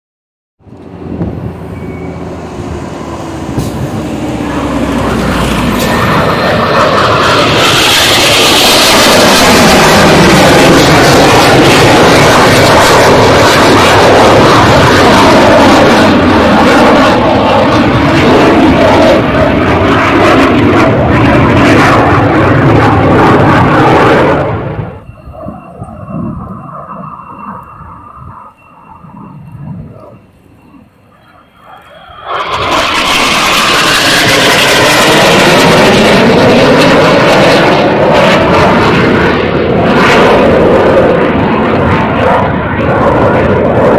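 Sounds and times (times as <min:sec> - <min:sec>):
jet engines rumbling: 0:00.6 - 0:43.9
thin high whine: 0:00.7 - 0:08.5, 0:24.8 - 0:33.8.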